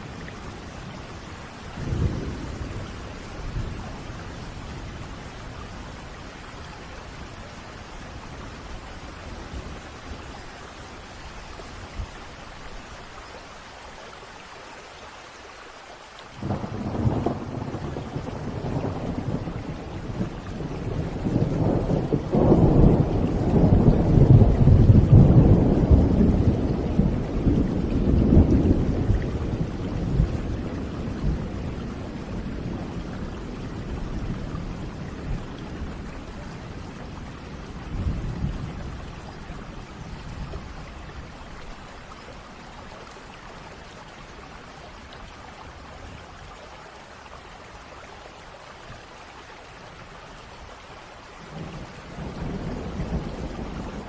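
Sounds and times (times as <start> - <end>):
thunder rumbling: 0.0 - 6.0, 16.4 - 41.6, 51.4 - 54.0
steady rain: 0.0 - 54.0.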